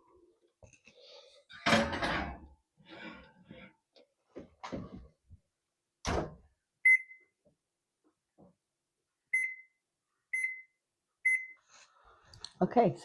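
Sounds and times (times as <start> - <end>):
oven door and rack clattering: 1.6 - 2.4.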